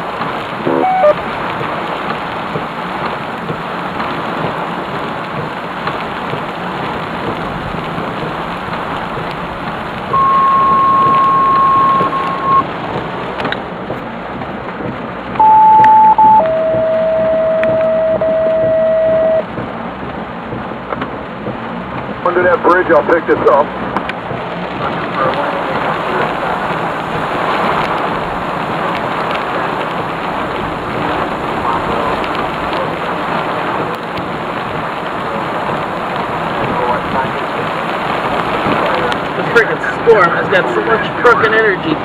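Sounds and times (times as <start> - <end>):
heavy rain pouring: 0.0 - 42.0
loud electronic tones: 0.7 - 1.2, 10.1 - 12.6, 15.4 - 19.5.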